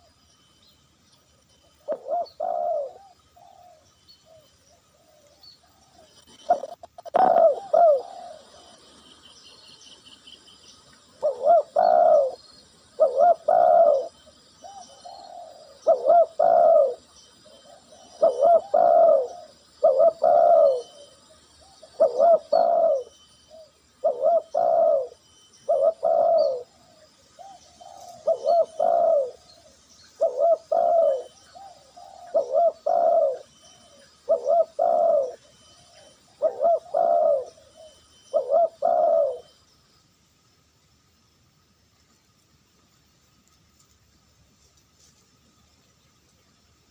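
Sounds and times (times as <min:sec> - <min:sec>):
dove cooing: 0:01.8 - 0:09.0, 0:11.0 - 0:39.6.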